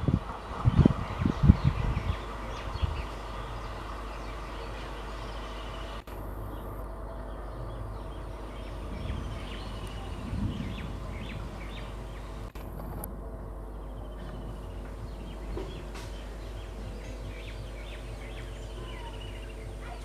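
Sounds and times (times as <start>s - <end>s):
birds chirping: 0.0s - 20.0s
train approaching low hum: 0.0s - 20.0s
low thuds: 7.6s - 18.6s.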